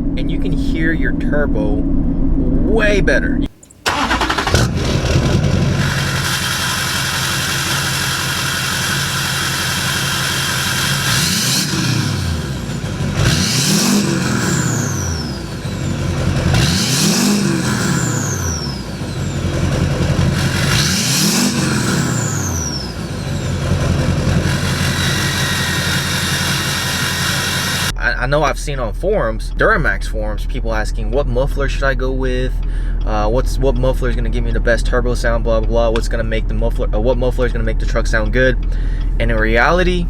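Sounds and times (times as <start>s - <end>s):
diesel engine idling and revving: 3.9s - 28.0s, 30.1s - 40.0s
turbo whistle: 24.5s - 27.9s.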